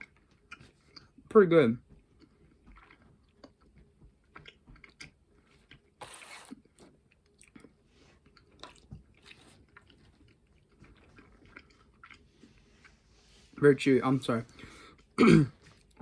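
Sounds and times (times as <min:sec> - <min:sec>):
chewing gummy candy: 0:00.0 - 0:12.7.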